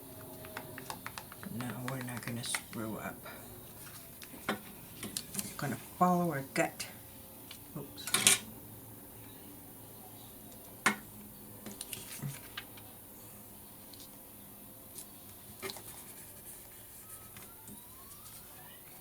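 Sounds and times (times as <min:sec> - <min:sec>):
paper clicks and rustles: 0:11.7 - 0:12.8.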